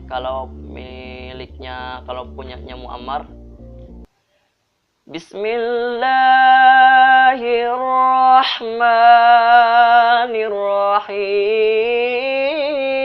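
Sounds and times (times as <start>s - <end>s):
man chanting recitation: 0.0s - 3.4s, 5.1s - 13.0s
short breath: 4.1s - 4.7s.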